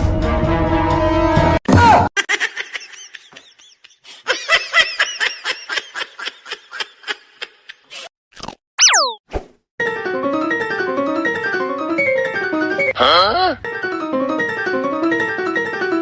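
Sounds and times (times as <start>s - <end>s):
high-pitched laughter: 2.2s - 7.9s.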